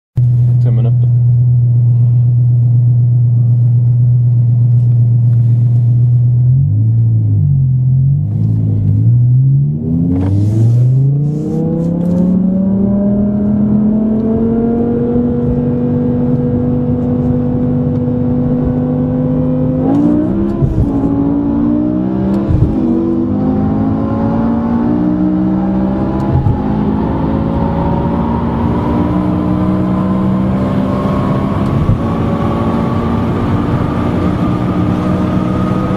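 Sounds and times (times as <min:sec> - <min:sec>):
sports car engine accelerating: 0:00.2 - 0:35.9
gear shift click: 0:19.8 - 0:21.2, 0:22.3 - 0:23.2.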